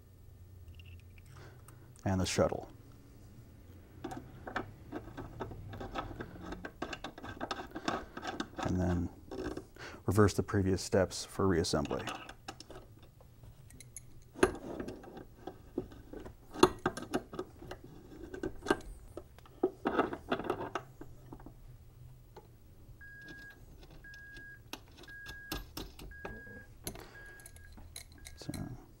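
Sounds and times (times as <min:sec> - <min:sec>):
metal valve parts clicking: 0:11.7 - 0:15.6, 0:26.8 - 0:28.8
high electronic beep: 0:24.1 - 0:28.5.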